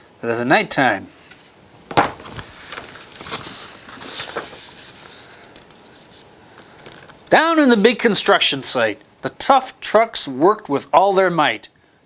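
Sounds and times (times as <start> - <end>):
paper page rustling: 1.3 - 8.3.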